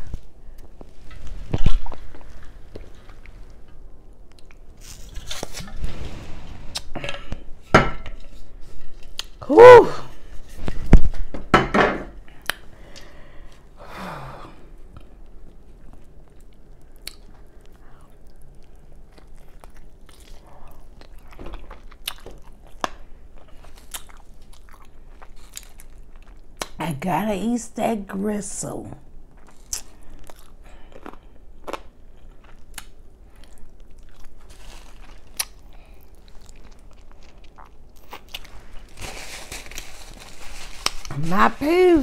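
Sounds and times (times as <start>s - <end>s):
chewing and crunching food: 0.0s - 5.6s, 14.8s - 26.8s, 29.3s - 41.2s.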